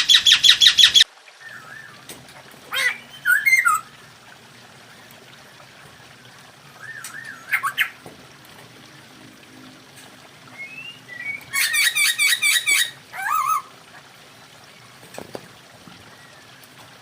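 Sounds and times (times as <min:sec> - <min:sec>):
soft wavering bird whistle: 0:06.8 - 0:07.9, 0:10.6 - 0:12.9
bird squawky whistled calls: 0:06.8 - 0:08.0, 0:10.6 - 0:13.7.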